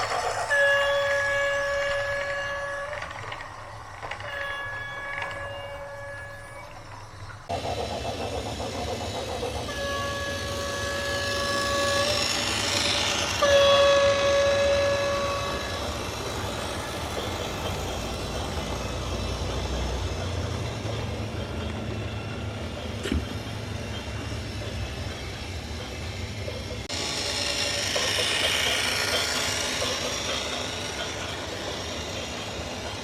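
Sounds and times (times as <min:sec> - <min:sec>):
vehicle horn blasts: 0:13.4 - 0:15.7.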